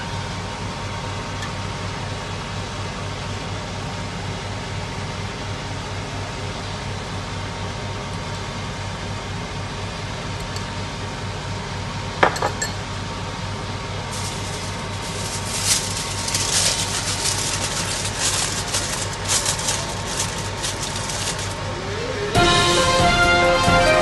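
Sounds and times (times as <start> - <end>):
steady hum: 13.3 - 23.2
aluminium foil crinkling: 14.1 - 21.7.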